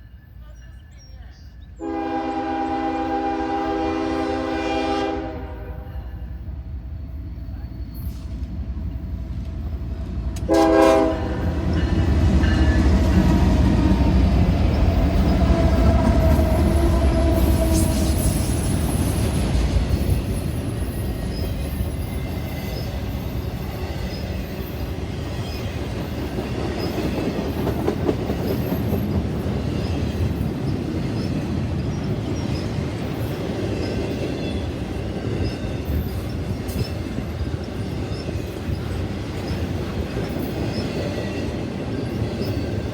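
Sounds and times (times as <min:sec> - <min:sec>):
train rumbling past: 0:00.0 - 0:42.9
train horn blast: 0:01.8 - 0:06.2, 0:10.4 - 0:11.9, 0:15.5 - 0:18.5
wheels clickety-clack: 0:11.6 - 0:42.9.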